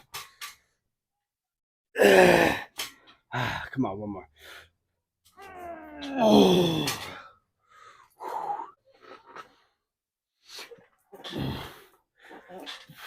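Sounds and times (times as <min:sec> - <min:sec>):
man straining groan: 0:02.0 - 0:02.7, 0:05.4 - 0:07.3
man breathing heavily: 0:06.5 - 0:09.6.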